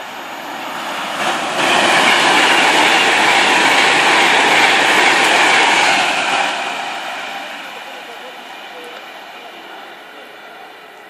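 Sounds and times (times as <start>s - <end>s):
train wheels rushing on rails: 0.0s - 11.0s.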